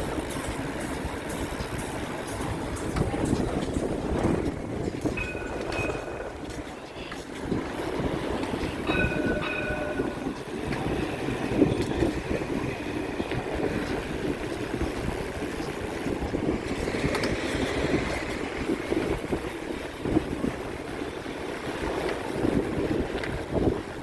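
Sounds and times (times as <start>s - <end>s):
bicycle rattling ride noise: 0.0s - 24.0s.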